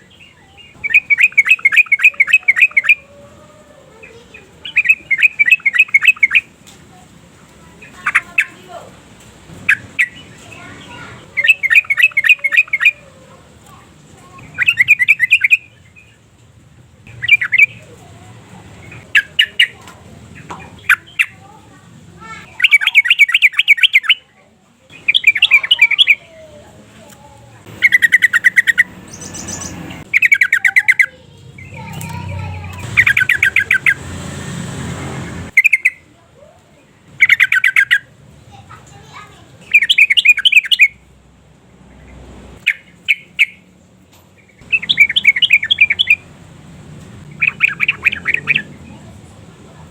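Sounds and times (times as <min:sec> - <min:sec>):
sharp bird calls: 0:00.0 - 0:03.4, 0:04.0 - 0:06.6, 0:07.7 - 0:08.8, 0:09.5 - 0:13.4, 0:14.2 - 0:16.2, 0:17.1 - 0:18.0, 0:18.8 - 0:21.6, 0:22.2 - 0:24.3, 0:24.9 - 0:26.5, 0:27.6 - 0:36.2, 0:37.0 - 0:41.0, 0:41.9 - 0:43.7, 0:44.4 - 0:46.4, 0:47.2 - 0:49.1
bulbul bubbling calls: 0:00.8 - 0:03.1, 0:04.6 - 0:06.5, 0:11.4 - 0:13.0, 0:14.4 - 0:15.7, 0:17.1 - 0:17.8, 0:22.6 - 0:24.2, 0:27.7 - 0:31.1, 0:32.8 - 0:34.0, 0:37.2 - 0:38.1, 0:44.6 - 0:46.3, 0:47.3 - 0:48.8.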